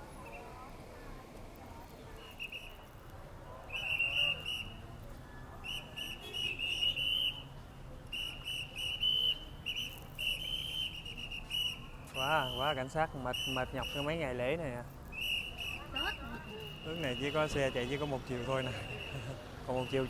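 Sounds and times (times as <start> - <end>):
traffic hum: 0.0 - 20.0
whistle blasts: 2.2 - 2.8, 3.7 - 4.8, 5.6 - 7.5, 8.1 - 14.2, 15.1 - 17.7.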